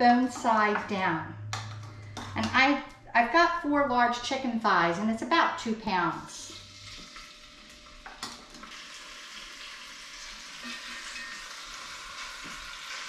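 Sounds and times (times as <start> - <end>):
chicken sizzling in oil: 6.5 - 13.0.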